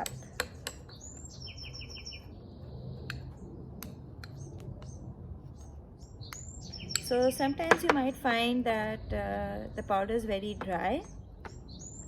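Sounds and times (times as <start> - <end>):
bird chirping: 0.0 - 7.5, 10.7 - 12.0.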